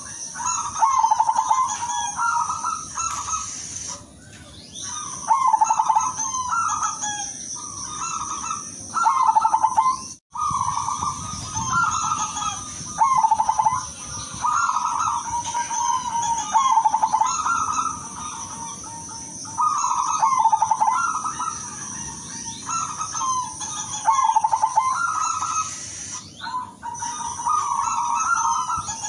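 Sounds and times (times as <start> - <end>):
dove cooing in trills: 0.0 - 29.0
steady high hiss: 3.2 - 4.2, 24.3 - 26.4.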